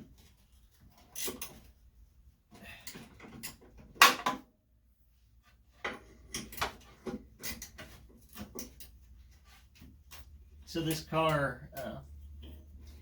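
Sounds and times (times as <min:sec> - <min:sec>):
tools clicking and knocking: 0:00.9 - 0:01.7, 0:02.8 - 0:04.5, 0:05.8 - 0:09.0.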